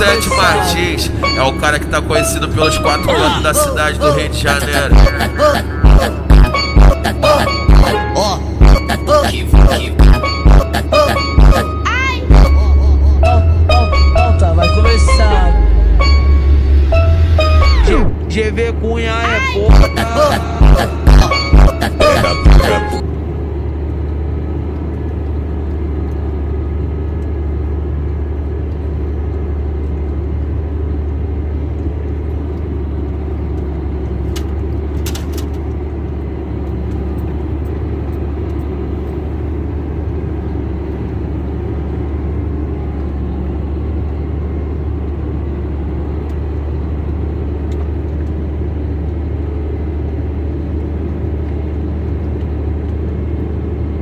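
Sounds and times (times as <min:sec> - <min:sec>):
steady low rumble: 0:00.0 - 0:34.9.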